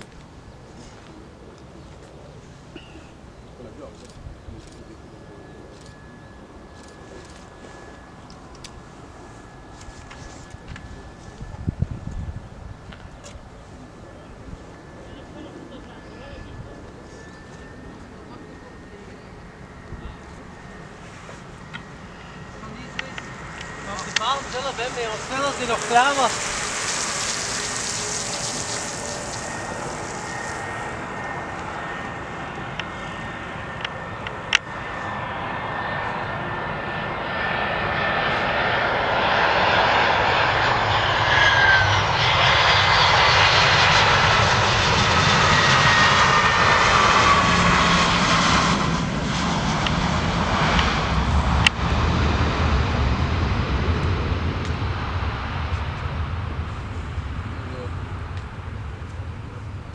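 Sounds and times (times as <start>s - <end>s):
jet airliner passing: 0.0s - 59.9s
jet engine whine: 0.0s - 59.9s
deep rumble: 16.0s - 34.1s, 42.1s - 59.8s.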